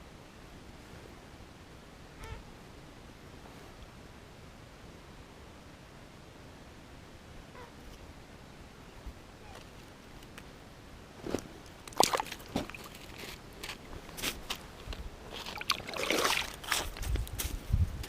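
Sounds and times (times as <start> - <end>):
water and slush sloshing: 11.8 - 13.4, 15.3 - 17.0
water splash: 11.9 - 13.1, 15.4 - 16.8.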